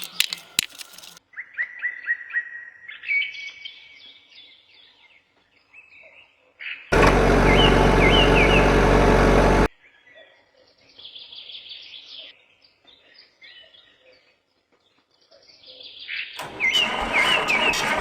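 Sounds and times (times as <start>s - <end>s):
small birds chirping: 0.0s - 8.7s, 9.8s - 16.8s
loud mechanical hum: 6.9s - 9.7s, 16.4s - 18.0s.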